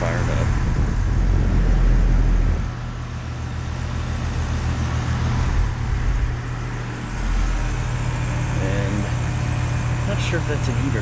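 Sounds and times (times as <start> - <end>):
low rumble: 0.0 - 9.6
heat pump compressor hum: 0.0 - 11.0.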